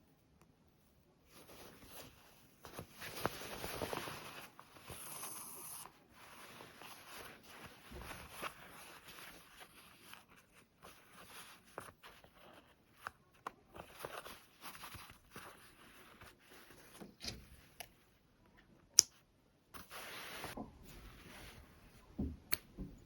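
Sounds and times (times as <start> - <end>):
fabric rustling: 1.2 - 5.0, 5.9 - 17.6, 19.8 - 22.1.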